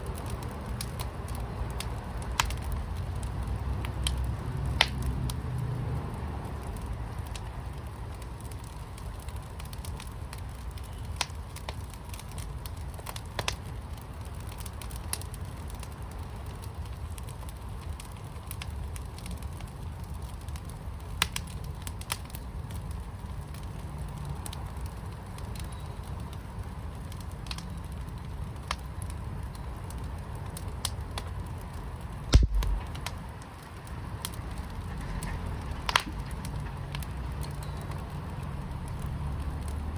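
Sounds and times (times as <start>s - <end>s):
sharp pops of fire: 0.0s - 5.6s, 6.7s - 22.5s, 27.1s - 39.8s
fire crackling in a fire pit: 0.0s - 39.9s
low rumble: 32.3s - 33.2s
loud thump: 32.4s - 33.0s.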